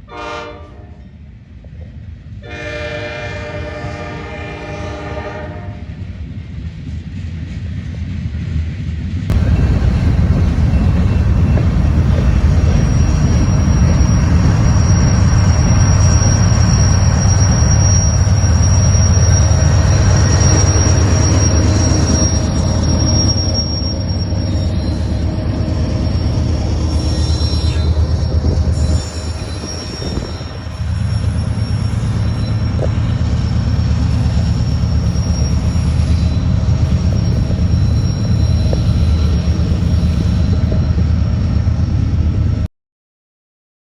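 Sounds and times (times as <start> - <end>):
train wheels rumbling on rail: 0.0 - 42.7
high wheel squeal: 9.3 - 41.3.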